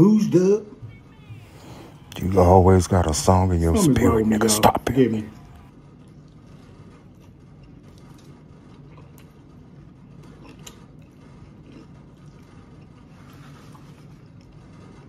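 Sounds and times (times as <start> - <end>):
steady low hum: 0.0 - 15.0
chewing food: 5.6 - 15.0.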